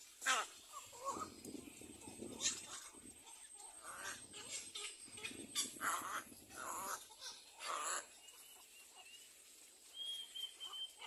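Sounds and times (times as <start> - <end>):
bird chicks rasping calls: 0.2 - 9.4, 10.0 - 11.0
faint thin whistle: 9.9 - 11.0.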